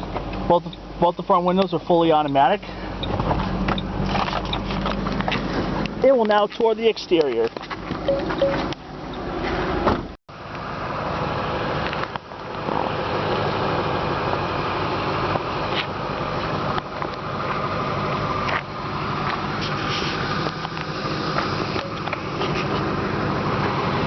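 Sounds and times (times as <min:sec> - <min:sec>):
car engine idling: 0:10.3 - 0:24.0.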